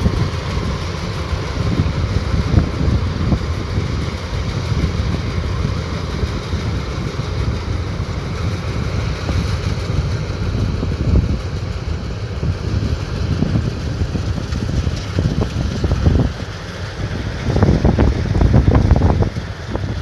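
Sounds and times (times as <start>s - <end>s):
harvester engine rumbling: 0.0s - 20.0s.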